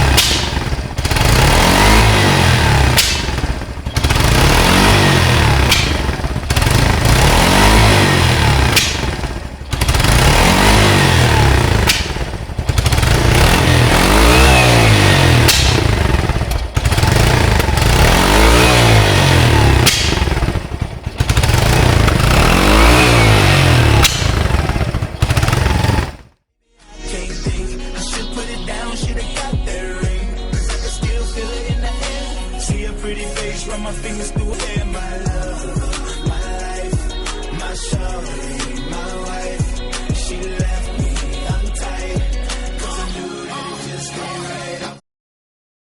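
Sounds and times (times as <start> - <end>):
motorcycle engine revving: 0.0 - 26.4.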